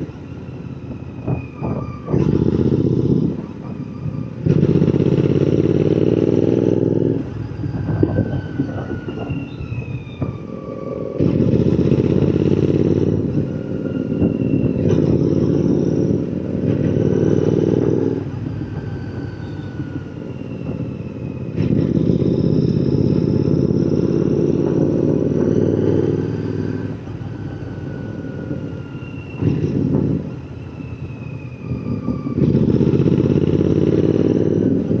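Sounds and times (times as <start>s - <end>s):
motorcycle engine revving: 1.6s - 3.6s, 4.4s - 9.3s, 10.6s - 20.8s, 21.4s - 30.4s, 32.4s - 35.0s.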